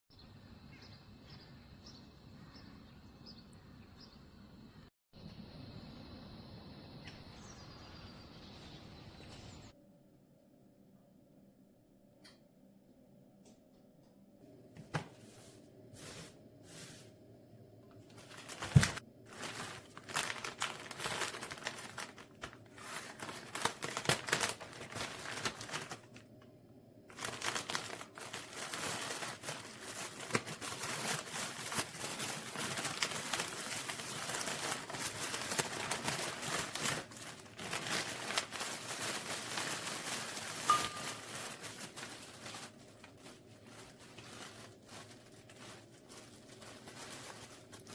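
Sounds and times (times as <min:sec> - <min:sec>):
crinkling and rustling: 0:14.4 - 0:47.9.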